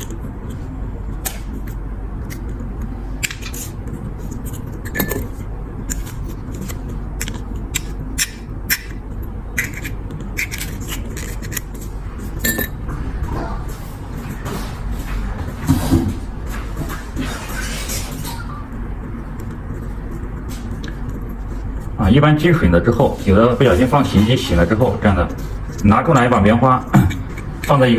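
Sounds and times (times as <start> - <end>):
steady low hum: 0.0 - 27.9
metal parts clicking and scraping: 3.2 - 8.9, 9.6 - 12.8.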